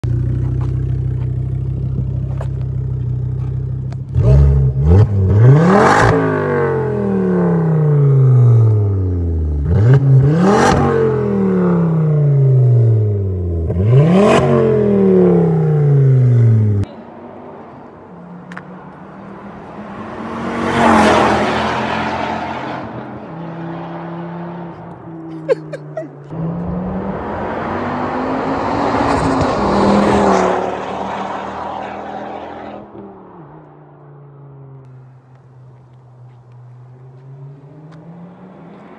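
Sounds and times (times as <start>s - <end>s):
car engine idling and revving: 0.0s - 38.9s
car passing by at speed: 17.2s - 25.4s, 26.3s - 38.9s.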